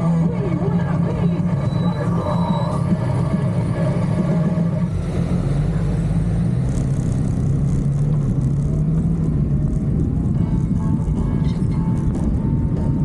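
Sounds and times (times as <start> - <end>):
motorcycle engine running: 2.8 - 13.0.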